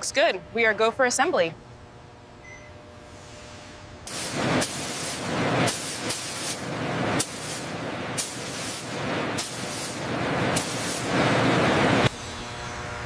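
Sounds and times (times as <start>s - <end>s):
loud rushing hiss: 3.1s - 12.5s.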